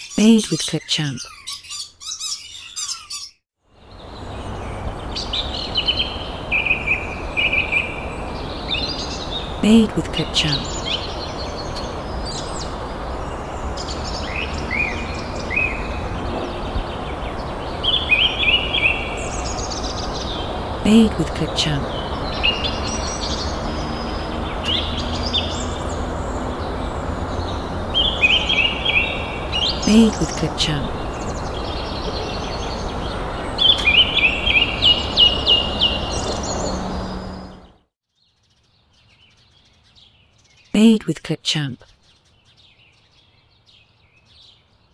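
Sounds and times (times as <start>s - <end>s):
birds chirping: 0.0s - 44.9s
outdoor background hiss: 3.7s - 37.7s.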